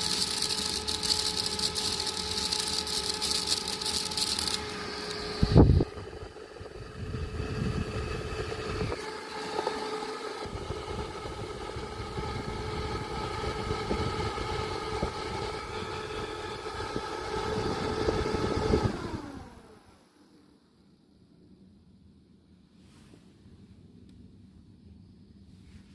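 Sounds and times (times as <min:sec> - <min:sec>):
electric fan motor whine: 0:00.0 - 0:22.4
wind gusts on microphone: 0:10.5 - 0:19.3.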